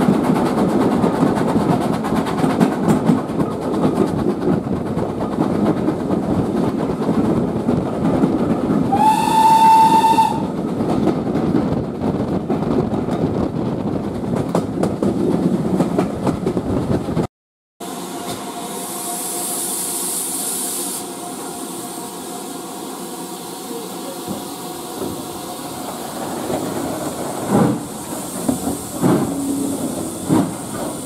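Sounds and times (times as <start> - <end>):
steam train rumble and rail clatter: 0.0 - 31.0
locomotive whistle: 8.9 - 10.5.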